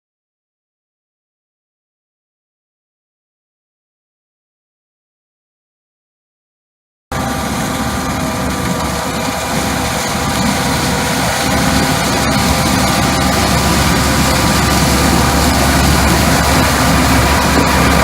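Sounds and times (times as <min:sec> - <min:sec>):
harvesting machinery engine running: 0:07.1 - 0:18.0.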